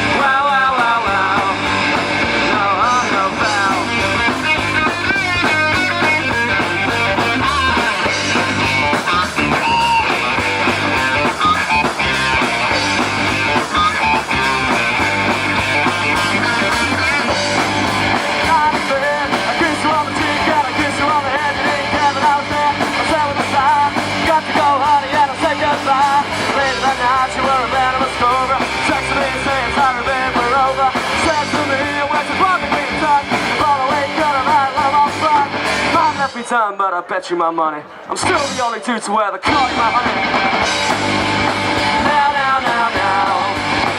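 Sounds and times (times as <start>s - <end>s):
rock band playing live: 0.0s - 36.6s, 38.0s - 43.9s.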